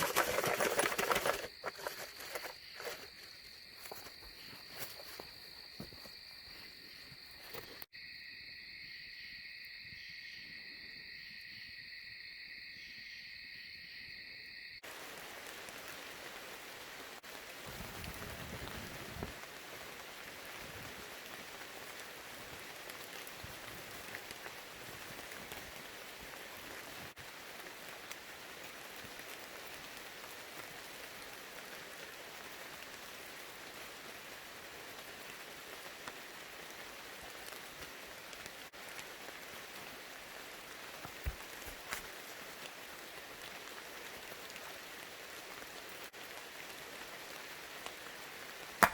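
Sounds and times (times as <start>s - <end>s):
insects trilling: 0.0s - 15.4s
rain falling: 14.8s - 48.9s.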